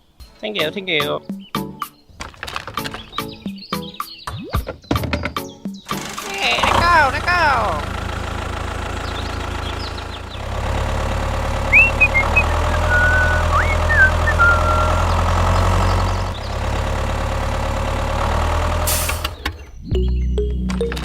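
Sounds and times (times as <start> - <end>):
tractor engine running: 5.9 - 21.0
short high chirps: 11.7 - 15.2.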